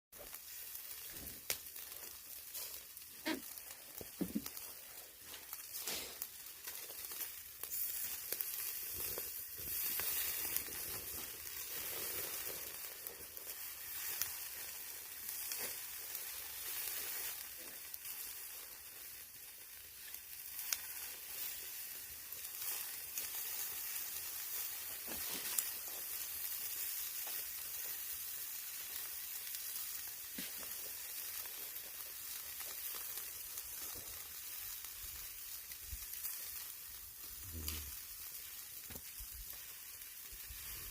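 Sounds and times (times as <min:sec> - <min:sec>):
meat sizzling on a grill: 0:00.2 - 0:40.9
fat popping: 0:03.2 - 0:04.6.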